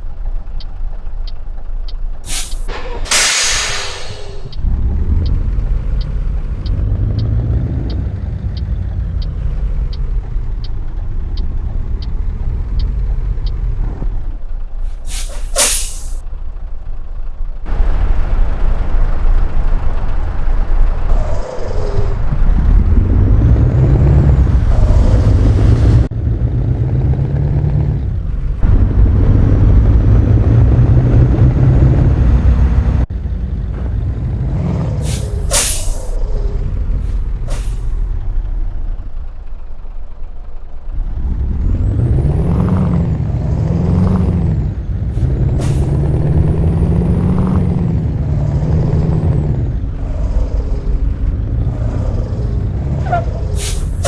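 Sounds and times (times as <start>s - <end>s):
truck diesel engine revving: 0.0s - 54.0s
air brake hisses: 2.3s - 4.6s, 14.9s - 16.2s, 35.0s - 36.2s, 37.1s - 38.0s, 45.6s - 46.0s, 53.6s - 54.0s.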